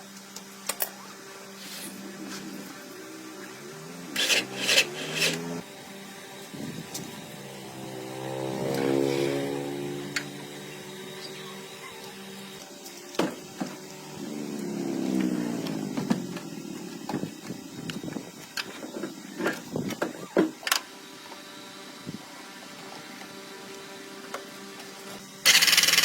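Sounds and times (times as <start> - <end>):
motor-driven machine running: 0.1 - 26.0.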